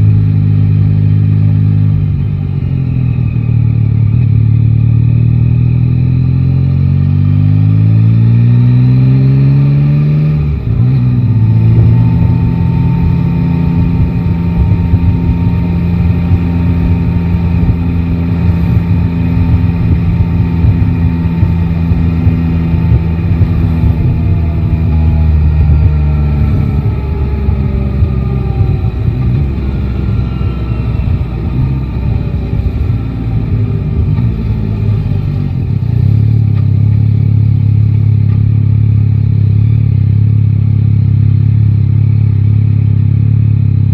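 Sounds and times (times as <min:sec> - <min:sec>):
motorcycle engine: 0:00.0 - 0:43.9
wind and road noise: 0:00.0 - 0:43.9.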